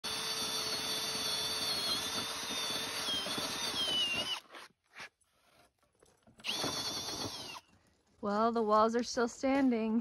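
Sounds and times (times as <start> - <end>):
power tool whining: 0.0 - 4.7, 6.4 - 7.8.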